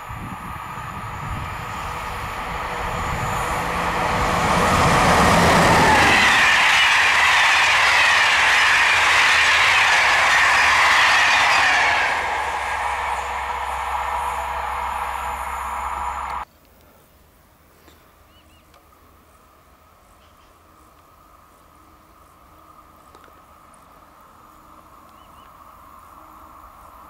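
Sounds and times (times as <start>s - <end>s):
train passing: 0.0s - 16.4s.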